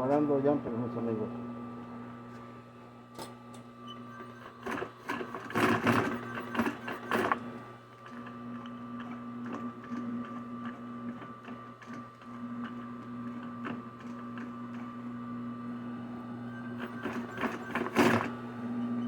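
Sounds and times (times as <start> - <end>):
sewing machine running: 4.0 - 19.0.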